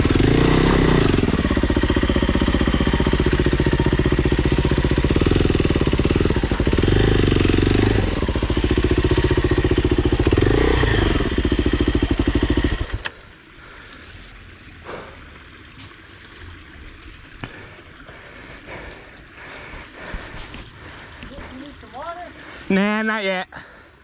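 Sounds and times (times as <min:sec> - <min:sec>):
dirt bike engine running: 0:00.0 - 0:13.9.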